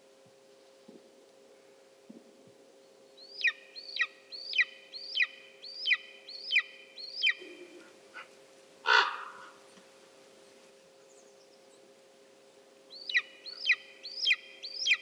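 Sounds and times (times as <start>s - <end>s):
eagle yelping calls: 3.4s - 9.6s.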